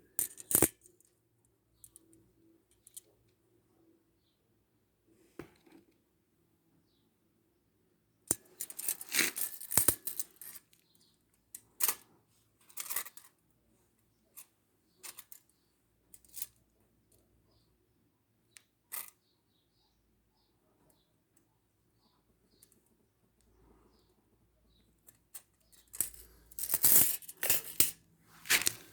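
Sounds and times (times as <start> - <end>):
rustling and scraping: 8.5 - 10.6, 25.4 - 28.9.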